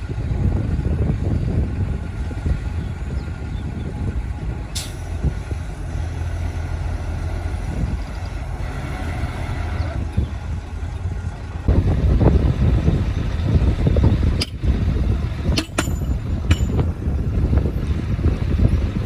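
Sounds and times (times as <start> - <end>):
diesel machinery engine rumble: 0.0 - 19.0
machinery knocks and clanks: 14.2 - 17.2.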